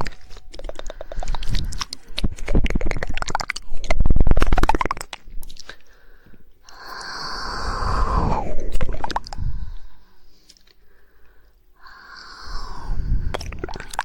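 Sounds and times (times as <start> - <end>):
wet tongue clicks and smacks: 0.0 - 5.9, 13.3 - 14.0
breathy hiss: 5.8 - 14.0.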